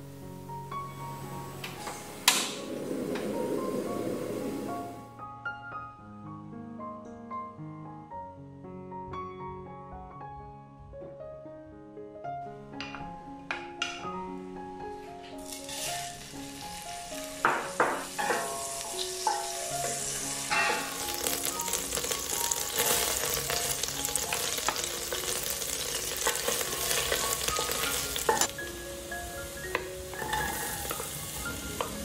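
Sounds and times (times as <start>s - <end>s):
wooden spatula scraping pot: 15.4s - 16.2s
butter and garlic sizzling: 15.4s - 32.0s.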